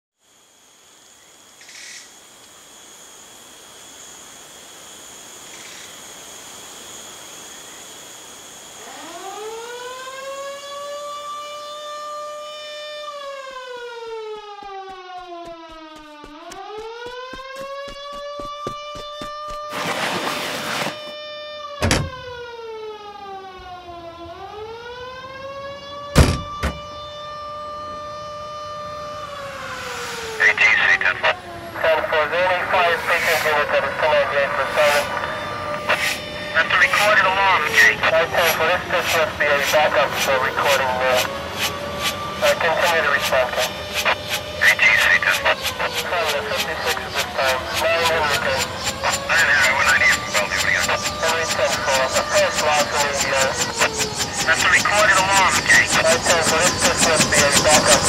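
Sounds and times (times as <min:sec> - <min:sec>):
high-pitched whine: 0:00.2 - 0:22.4, 0:26.1 - 0:58.0
siren wailing: 0:08.7 - 0:19.8, 0:20.7 - 0:58.0
sharp thumps: 0:14.4 - 0:19.7, 0:26.2 - 0:26.8.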